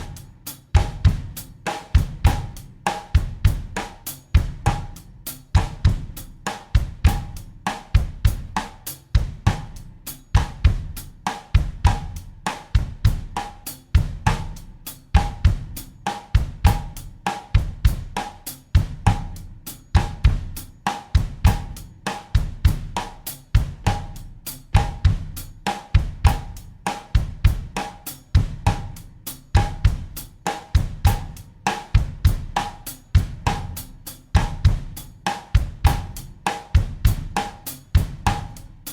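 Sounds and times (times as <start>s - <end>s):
bass drum: 0.0s - 38.9s
snare drum: 15.2s - 19.4s, 20.0s - 38.9s.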